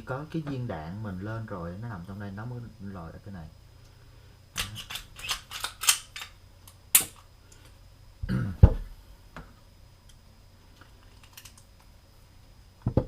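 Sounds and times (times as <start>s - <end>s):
pistol handling clicks: 4.6s - 7.6s.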